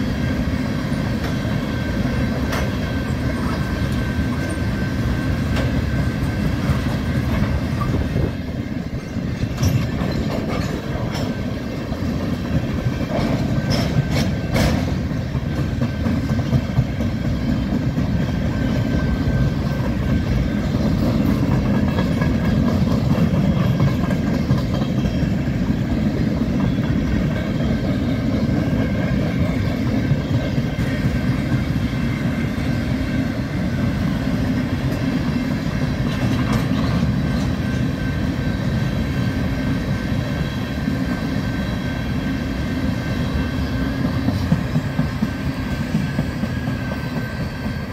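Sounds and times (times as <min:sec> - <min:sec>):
steel wheels rumbling on rail: 0:00.0 - 0:47.9
freight cars clanking: 0:00.9 - 0:31.8.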